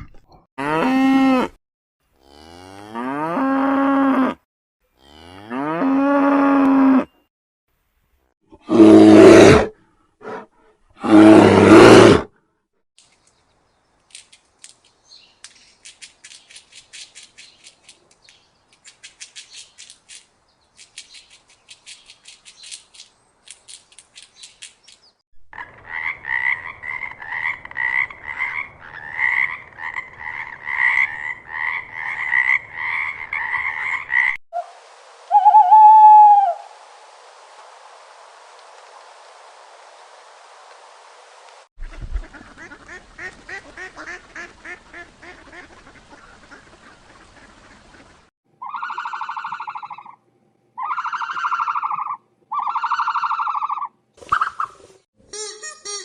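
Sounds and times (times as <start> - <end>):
rising and falling call: 34.6 - 36.8.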